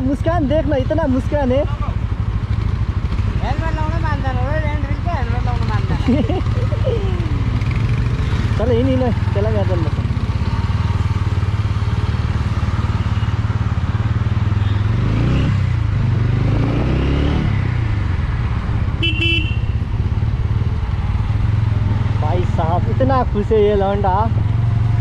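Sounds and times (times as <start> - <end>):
motorcycle engine: 0.0 - 25.0
vehicle horn beep: 19.0 - 19.8.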